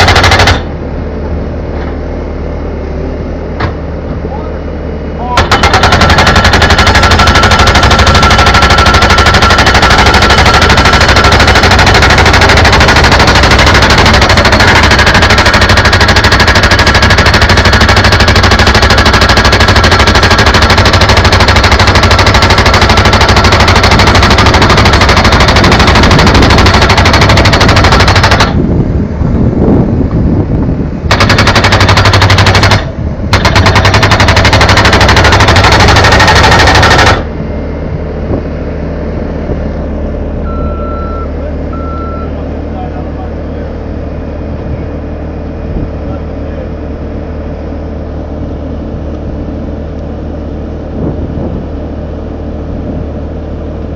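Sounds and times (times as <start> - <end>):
jackhammer hammering: 0.0 - 0.7, 5.4 - 28.6, 31.1 - 37.3
steady low hum: 0.0 - 53.9.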